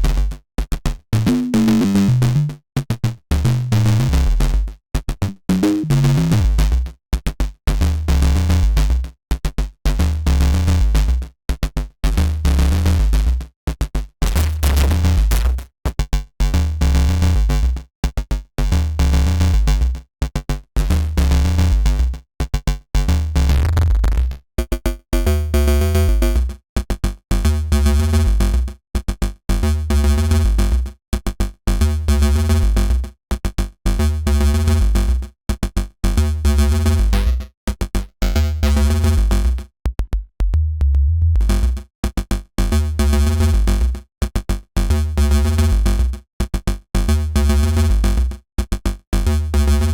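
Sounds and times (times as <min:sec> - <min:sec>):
distorted synth bass riff: 0:14.2 - 0:15.6.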